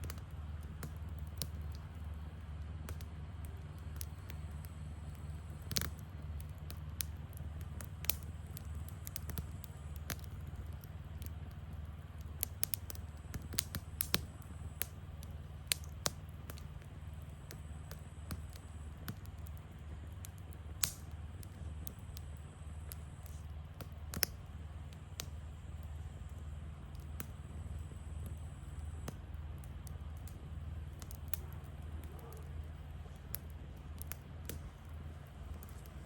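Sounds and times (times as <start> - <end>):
campfire crackling and popping: 0.0 - 36.0
steady low rumble: 0.0 - 36.0.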